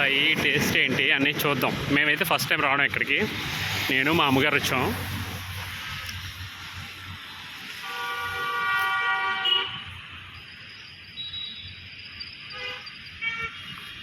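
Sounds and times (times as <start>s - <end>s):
vehicle horn blasts: 7.8s - 9.9s, 12.5s - 13.8s.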